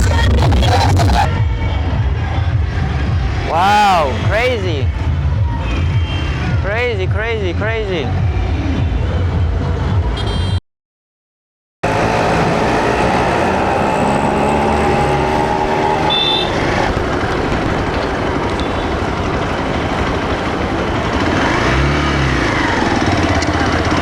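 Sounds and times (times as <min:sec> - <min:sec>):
motorcycle engine running: 0:11.8 - 0:24.0
wind and road noise: 0:11.8 - 0:24.0.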